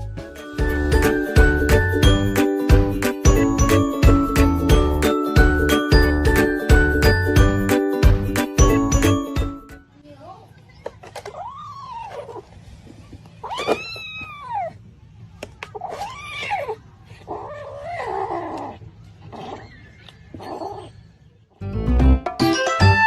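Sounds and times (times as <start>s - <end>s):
cat yowling: 11.4s - 12.4s, 13.4s - 14.8s, 15.7s - 18.8s.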